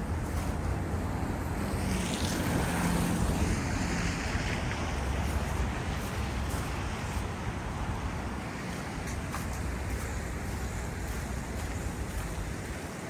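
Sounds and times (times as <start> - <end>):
faint engine hum: 0.0 - 13.0
low city rumble: 0.0 - 13.0
tyres swishing on slush: 0.1 - 13.0.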